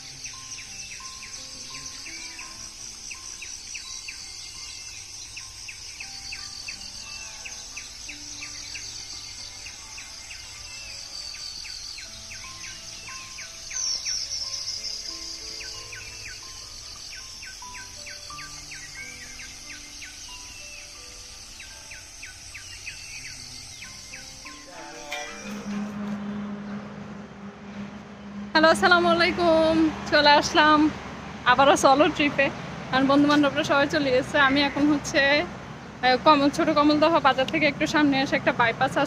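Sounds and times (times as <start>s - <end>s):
bird chirps: 0.0s - 25.8s
high insect trilling: 0.0s - 25.8s
soft background music: 0.0s - 39.0s.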